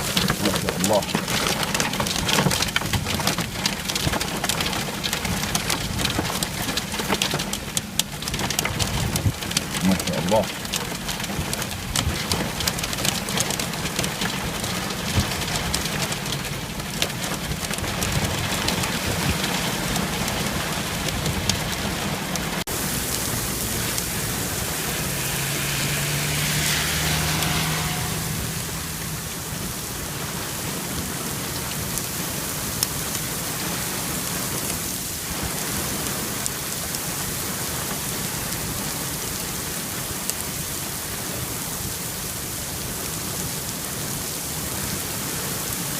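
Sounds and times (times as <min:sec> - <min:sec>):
hailstones ticking: 0:00.0 - 0:25.3
heavy rain: 0:00.0 - 0:45.9.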